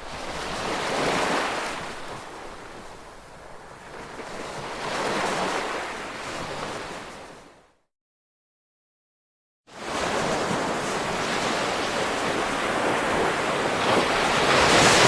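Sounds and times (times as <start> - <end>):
ocean waves breaking: 9.8 - 15.0.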